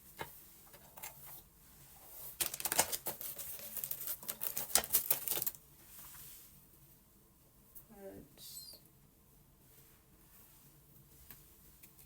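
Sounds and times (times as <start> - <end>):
comb rustling through hair: 2.0 - 6.5.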